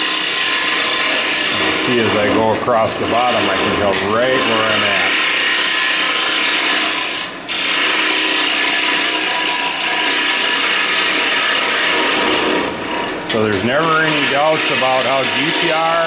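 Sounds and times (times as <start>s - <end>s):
cutter scraping wooden bowl on lathe: 0.0s - 16.0s.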